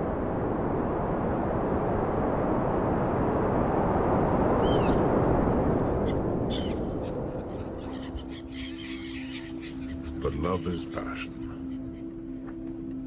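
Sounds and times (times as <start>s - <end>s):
low rushing noise: 0.0s - 8.8s
bird calls: 6.0s - 12.2s.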